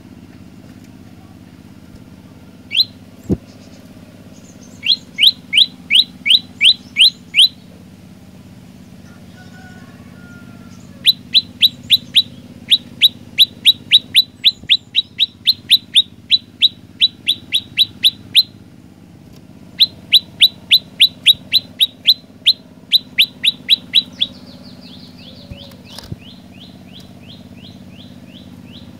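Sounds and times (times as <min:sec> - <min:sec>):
bird singing falling notes: 0:02.7 - 0:07.8, 0:10.7 - 0:18.6, 0:19.7 - 0:28.9.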